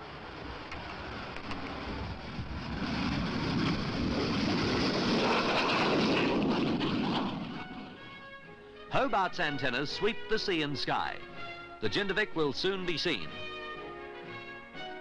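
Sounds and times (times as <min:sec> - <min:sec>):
loud jet engine running: 0:00.0 - 0:08.2.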